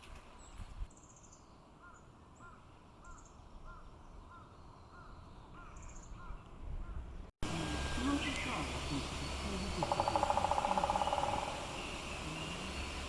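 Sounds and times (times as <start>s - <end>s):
birds chirping: 0.4s - 13.0s
stream rushing: 7.4s - 13.0s.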